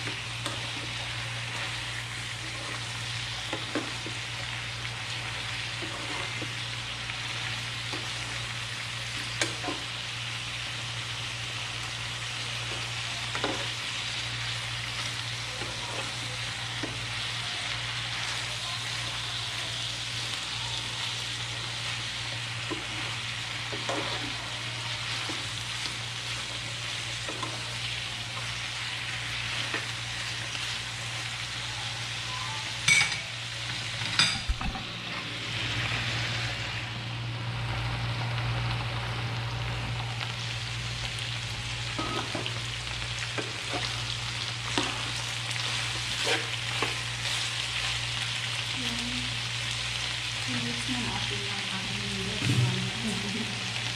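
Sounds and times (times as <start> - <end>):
food sizzling in frying pan: 0.0 - 53.9
spatula scraping pan: 5.6 - 6.6, 22.6 - 27.8, 43.3 - 47.6.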